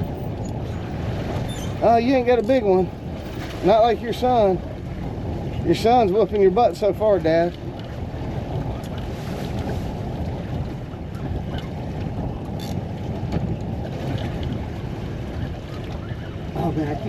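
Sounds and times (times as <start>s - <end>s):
wind rushing on microphone: 0.0s - 17.0s.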